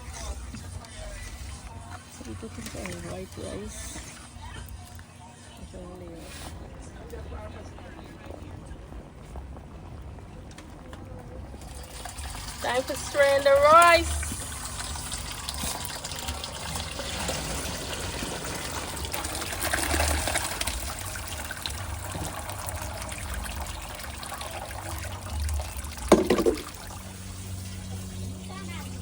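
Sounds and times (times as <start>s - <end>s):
water pouring and trickling: 0.0s - 4.4s, 11.6s - 29.0s.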